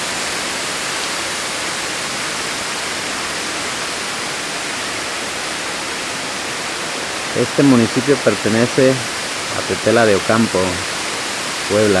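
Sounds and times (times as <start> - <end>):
waterfall rushing into pool: 0.0 - 12.0.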